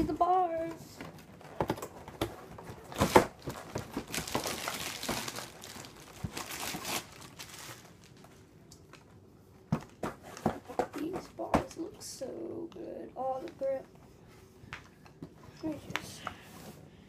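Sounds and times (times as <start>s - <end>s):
packaging wrap crinkling: 2.8s - 9.1s
sharp plastic crackle: 2.8s - 9.1s.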